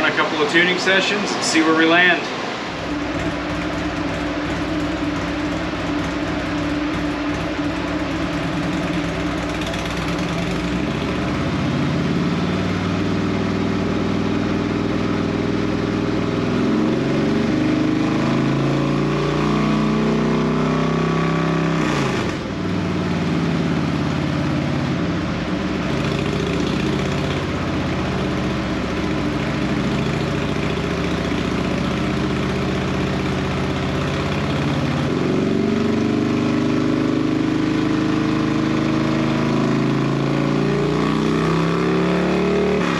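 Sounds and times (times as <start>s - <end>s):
cooling fans blowing: 0.0s - 18.6s, 22.1s - 35.9s
motorcycle engine revving: 2.0s - 42.9s.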